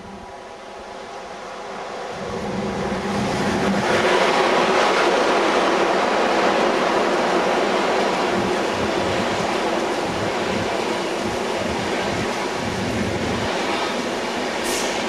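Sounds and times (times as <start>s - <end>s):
high-speed train passing: 0.0s - 15.0s.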